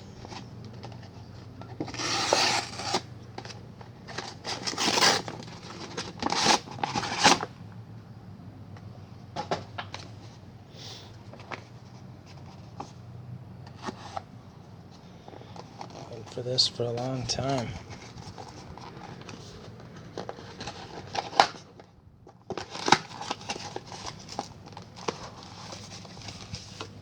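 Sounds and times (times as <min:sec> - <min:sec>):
cardboard packaging tearing: 0:01.7 - 0:07.5, 0:17.4 - 0:27.0
soft rustles: 0:23.5 - 0:27.0.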